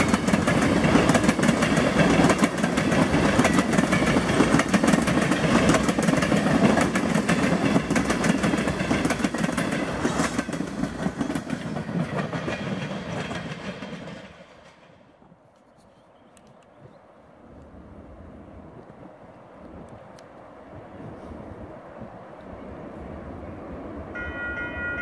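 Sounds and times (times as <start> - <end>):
wheels clicking over rail joints: 0.0 - 14.9
steel wheels rumbling on rail: 0.0 - 15.3.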